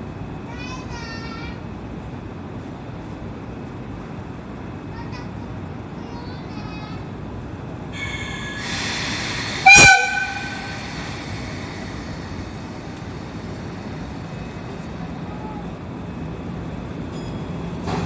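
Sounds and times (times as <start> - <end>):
train noise: 0.0 - 18.0
locomotive air whistle blast: 8.0 - 11.8.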